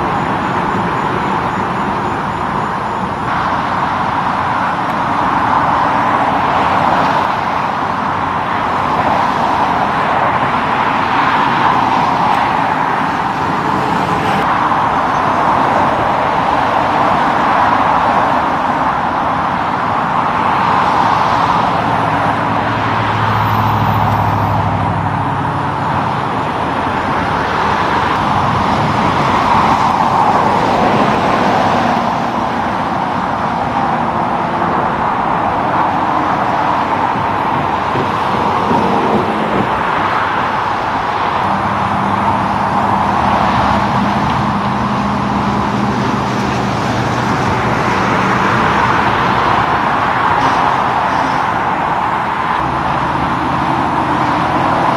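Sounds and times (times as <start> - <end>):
heavy trucks passing: 0.0 - 54.9.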